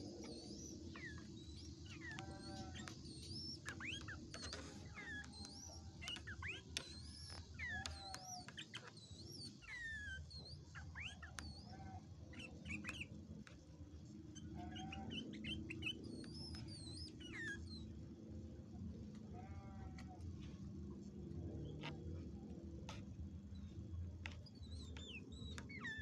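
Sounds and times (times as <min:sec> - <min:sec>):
bulbul singing: 0:00.0 - 0:13.2, 0:14.3 - 0:18.0, 0:23.5 - 0:26.0
steady low hum: 0:00.0 - 0:26.0.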